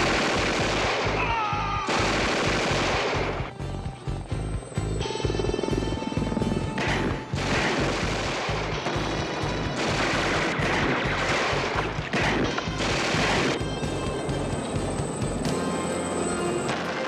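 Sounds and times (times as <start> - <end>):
rapid gunfire: 0.0 - 3.5, 5.3 - 13.9
action music with pulsing beat: 0.2 - 17.0.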